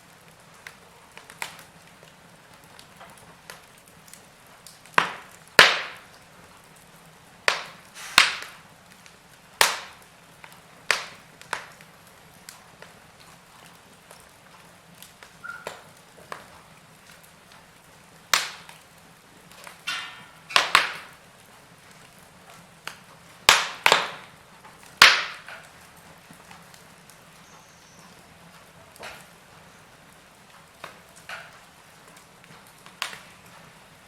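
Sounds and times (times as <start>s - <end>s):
log fire crackling: 0.0s - 34.0s
low steady hiss: 0.0s - 34.0s
loud sharp fire pops: 4.7s - 6.2s, 7.4s - 11.9s, 18.3s - 18.8s, 19.6s - 21.2s, 22.8s - 25.7s.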